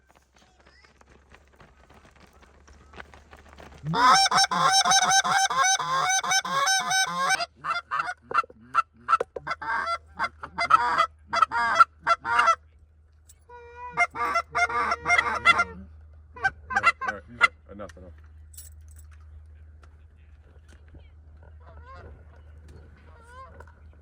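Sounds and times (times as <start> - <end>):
geese honking: 3.9 - 12.6, 13.5 - 17.6.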